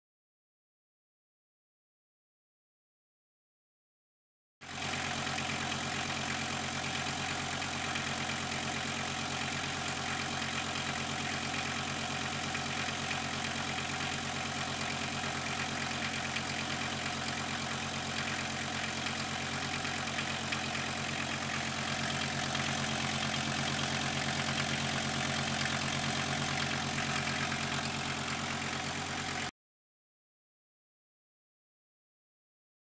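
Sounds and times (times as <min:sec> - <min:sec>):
diesel engine idling: 0:04.7 - 0:29.5.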